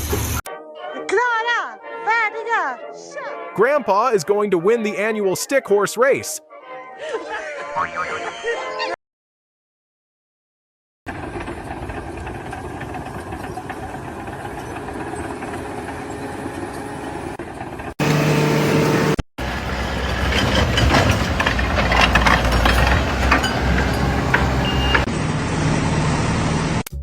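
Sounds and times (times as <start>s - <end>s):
construction machinery engine running: 11.1s - 26.9s
low engine rumble: 11.1s - 26.9s
clattering knocks: 19.4s - 25.1s.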